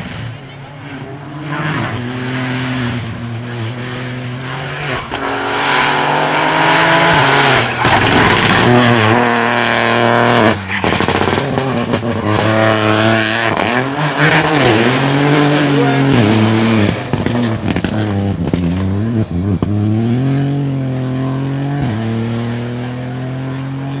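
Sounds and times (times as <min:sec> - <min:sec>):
rally car engine accelerating: 0:00.0 - 0:24.0.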